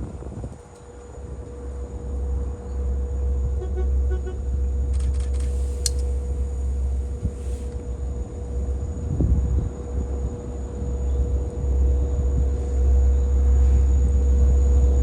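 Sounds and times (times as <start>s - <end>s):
diesel locomotives idling: 0.2s - 9.1s.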